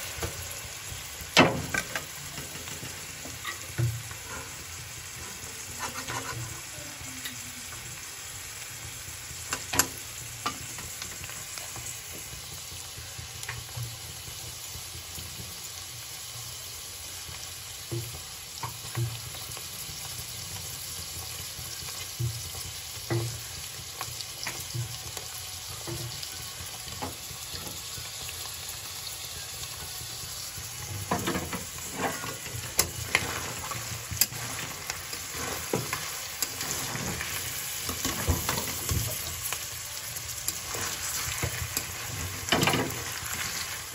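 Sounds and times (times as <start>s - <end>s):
cheese sizzling in oil: 0.0s - 43.9s
metal spatula scraping pan: 5.7s - 6.7s, 30.8s - 39.5s, 40.5s - 43.9s.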